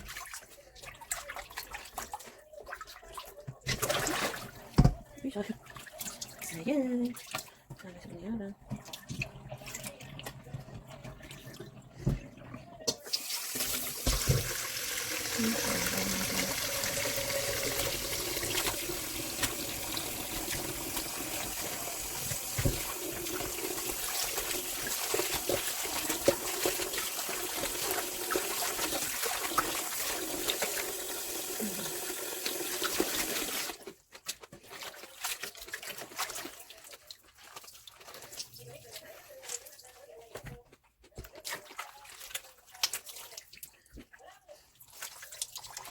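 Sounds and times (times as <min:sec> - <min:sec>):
tap water splashing into sink: 0:00.0 - 0:06.4, 0:08.6 - 0:33.8.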